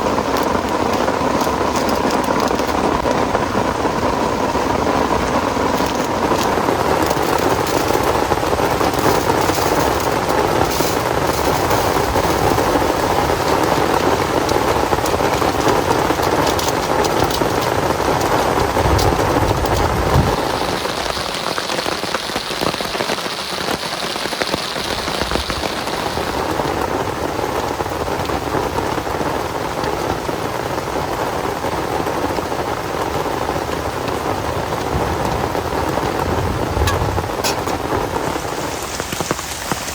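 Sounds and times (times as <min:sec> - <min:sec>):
heavy rain: 0:00.0 - 0:39.9
low rumble: 0:35.0 - 0:38.2.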